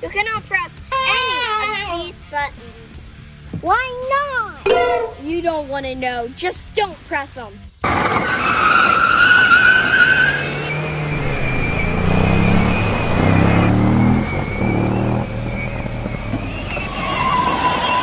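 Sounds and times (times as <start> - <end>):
vehicle engine revving: 10.4 - 17.4
steady whine: 11.0 - 15.8.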